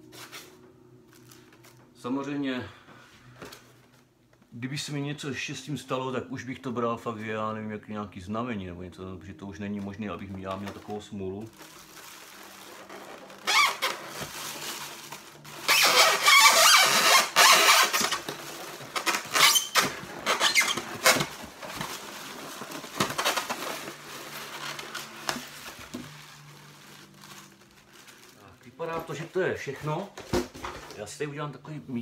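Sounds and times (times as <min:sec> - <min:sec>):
plastic wrapping rustling: 0:00.0 - 0:02.1, 0:09.1 - 0:31.1
polystyrene foam squeaking: 0:09.9 - 0:30.0.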